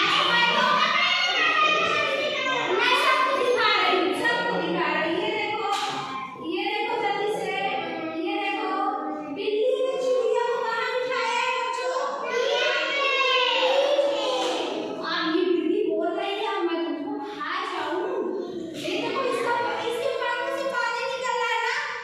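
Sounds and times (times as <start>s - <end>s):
children singing in unison: 0.0s - 2.8s.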